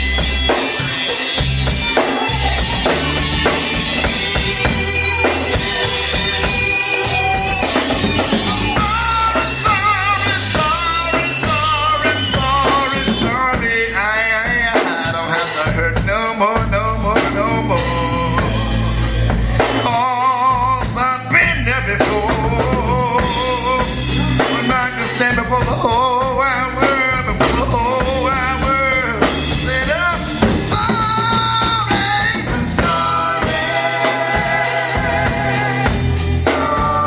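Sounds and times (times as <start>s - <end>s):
lead melody with heavy vibrato: 0.0s - 15.6s
band playing with drums and bass: 0.0s - 37.0s.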